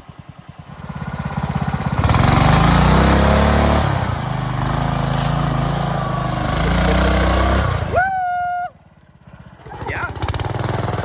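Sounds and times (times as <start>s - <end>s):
off-road vehicle engine revving: 0.7s - 11.0s.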